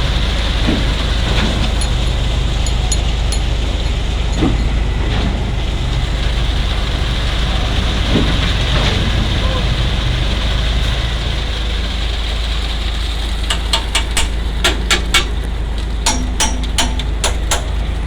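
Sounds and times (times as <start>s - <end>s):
heavy diesel engine running: 0.0s - 18.0s
sharp metal clanks: 0.7s - 4.8s, 13.5s - 18.0s.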